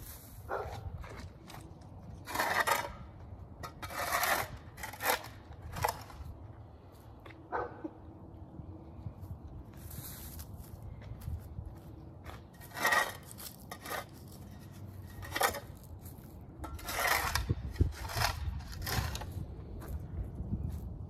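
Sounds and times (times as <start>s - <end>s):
shovel scraping soil: 0.0s - 6.9s, 12.3s - 19.8s.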